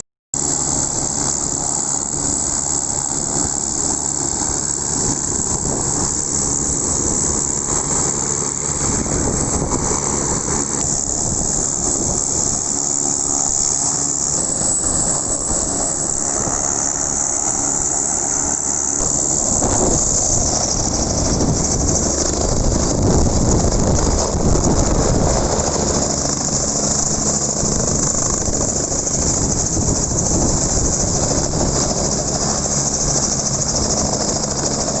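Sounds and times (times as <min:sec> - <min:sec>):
helicopter engine and rotor: 0:00.4 - 0:35.0.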